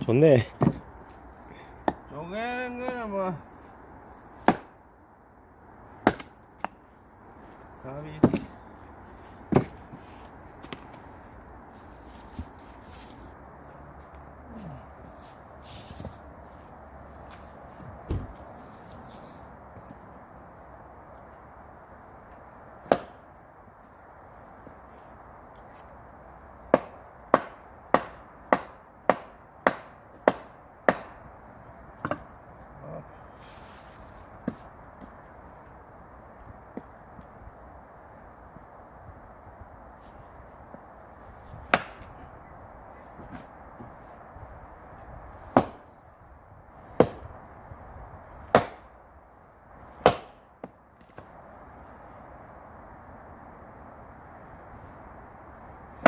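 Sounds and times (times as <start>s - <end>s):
axe chopping firewood: 0.6s - 0.9s, 4.4s - 4.8s, 6.0s - 6.8s, 8.2s - 8.6s, 9.5s - 9.8s, 22.8s - 23.3s, 26.7s - 31.3s, 41.6s - 42.2s, 45.5s - 45.9s, 46.9s - 47.3s, 48.4s - 48.9s, 49.9s - 51.3s.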